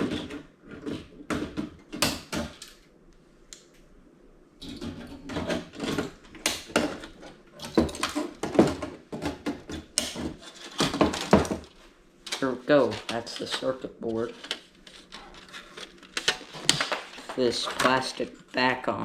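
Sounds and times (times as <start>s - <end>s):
hand tools on metal and plastic: 4.6s - 18.7s.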